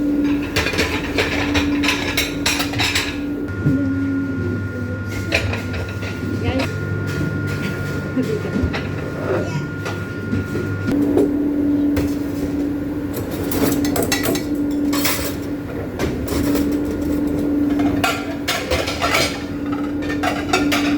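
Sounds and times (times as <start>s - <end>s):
machine hum: 0.0s - 20.9s
dishes clattering: 0.2s - 3.3s, 5.2s - 6.7s, 16.0s - 20.9s.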